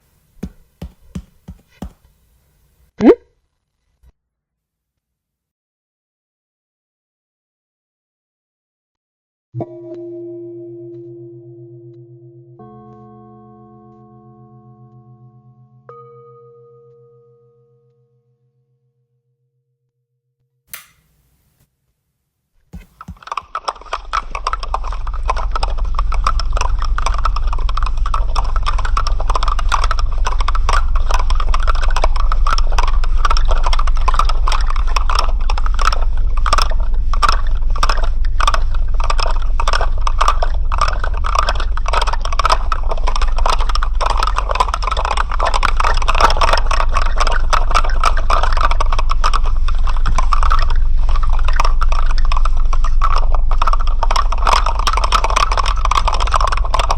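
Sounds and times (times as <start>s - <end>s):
steady low hum: 22.7s - 56.9s
dense rapid rattling clicks: 23.0s - 56.9s.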